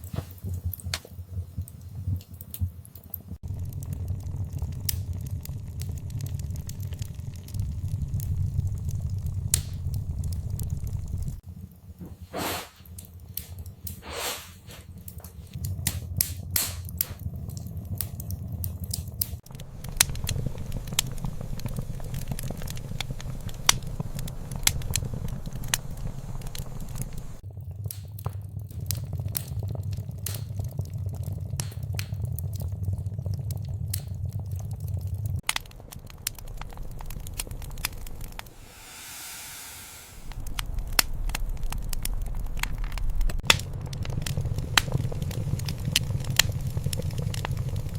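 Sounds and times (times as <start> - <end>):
wood fire crackling and popping: 0.0 - 39.2, 40.0 - 47.9
low rumble of flames: 0.0 - 47.9
brief hiss: 12.3 - 12.9, 14.0 - 14.8, 38.5 - 40.4.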